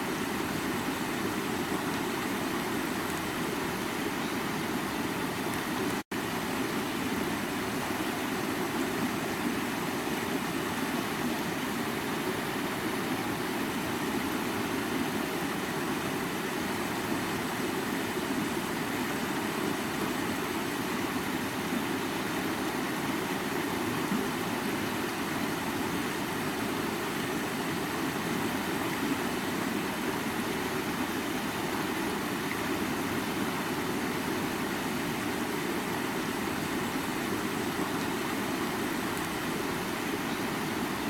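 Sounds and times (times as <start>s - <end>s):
creek water running: 0.0s - 41.0s.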